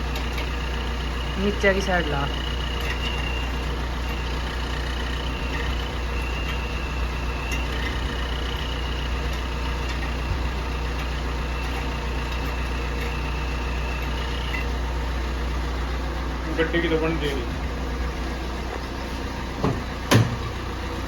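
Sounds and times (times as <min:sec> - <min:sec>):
vehicle engine idling: 0:00.0 - 0:21.0
faint high whistle tone: 0:05.3 - 0:07.9.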